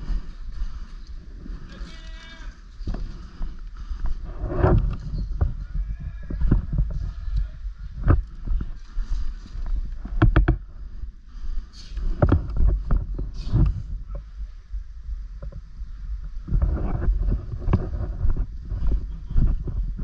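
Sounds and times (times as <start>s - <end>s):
knocks and rustling: 9.5s - 10.7s.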